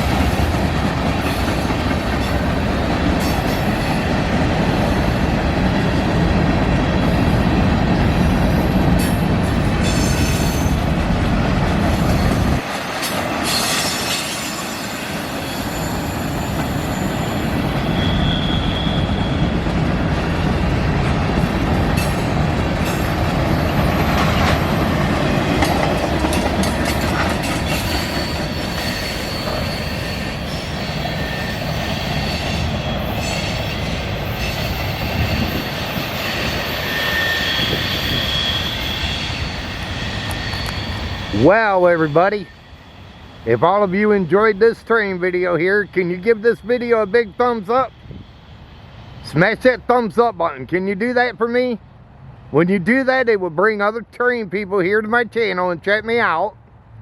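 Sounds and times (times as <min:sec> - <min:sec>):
train wheels clattering on rails: 0:00.0 - 0:41.5
wheel squeals: 0:11.8 - 0:19.8, 0:22.0 - 0:43.8.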